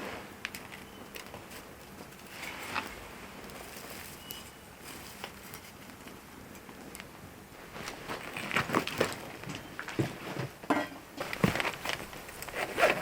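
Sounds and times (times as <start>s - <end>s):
campfire crackling: 0.2s - 9.4s.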